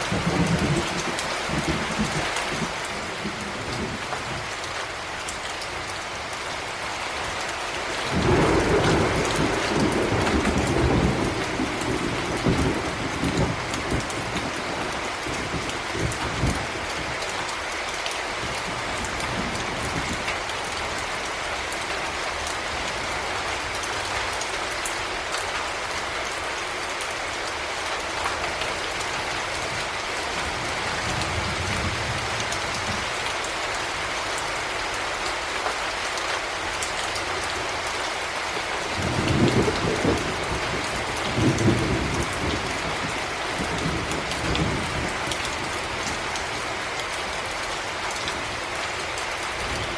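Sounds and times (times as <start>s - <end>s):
thunder rumbling: 0.0s - 4.4s, 8.1s - 17.2s, 39.0s - 46.2s
heavy rain falling: 0.0s - 49.9s.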